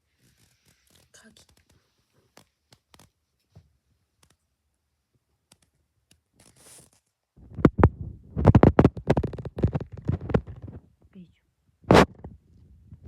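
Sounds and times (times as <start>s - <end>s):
scratching against microphone: 0.0s - 3.2s, 6.4s - 11.0s, 11.9s - 13.0s.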